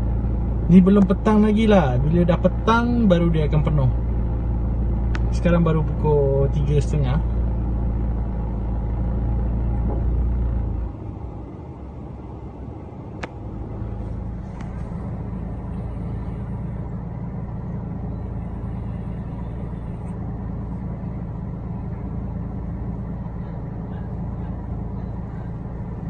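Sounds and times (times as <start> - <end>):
car engine idling hum: 0.0 - 26.0
deep rumble: 0.0 - 26.0.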